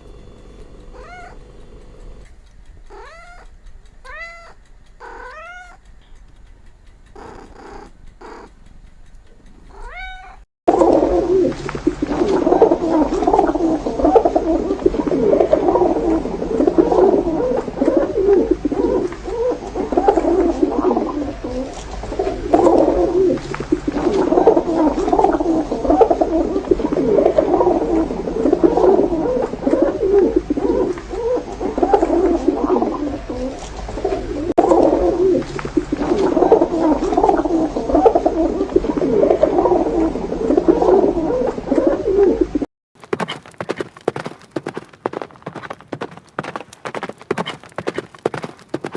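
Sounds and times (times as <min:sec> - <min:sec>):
clamour of animal calls: 0:00.0 - 0:01.8, 0:02.8 - 0:05.9, 0:07.0 - 0:08.6, 0:09.6 - 0:48.9
faint cat meows: 0:00.9 - 0:01.4, 0:02.9 - 0:03.5, 0:04.1 - 0:05.8, 0:09.7 - 0:10.4.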